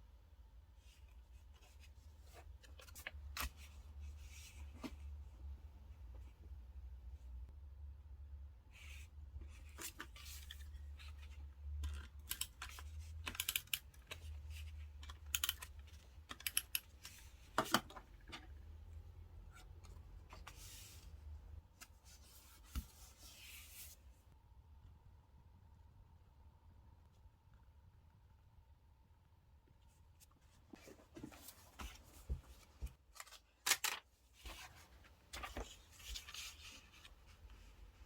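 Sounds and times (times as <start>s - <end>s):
paper and stickers rustling: 30.4s - 38.0s.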